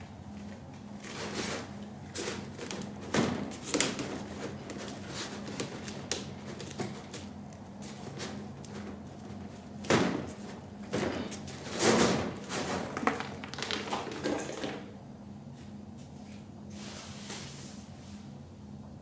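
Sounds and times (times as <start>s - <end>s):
steady low hum: 0.0s - 19.0s
scraping rustles: 1.0s - 14.6s.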